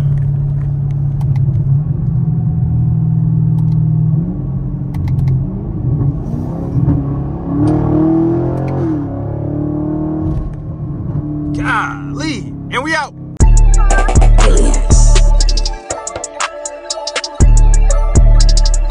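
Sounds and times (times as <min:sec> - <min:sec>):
car engine accelerating hard: 0:00.0 - 0:13.4.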